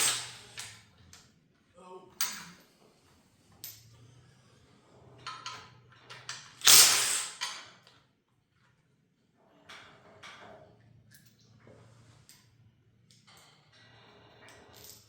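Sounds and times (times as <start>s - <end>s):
tools and metal parts clicking: 2.2s - 2.6s, 13.1s - 15.0s.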